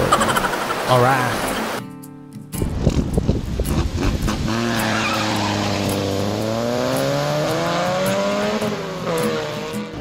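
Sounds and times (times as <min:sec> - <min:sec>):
car engine revving: 0:03.7 - 0:10.0.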